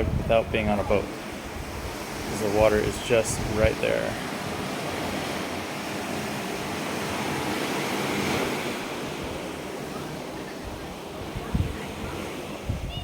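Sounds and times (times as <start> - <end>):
ocean surf washing ashore: 0.0 - 13.0.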